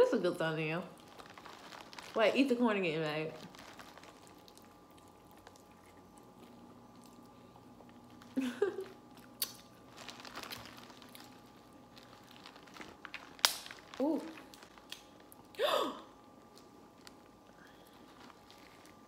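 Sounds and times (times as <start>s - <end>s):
faint steady hum: 0.0s - 19.0s
chewing and biting corn: 3.6s - 8.0s.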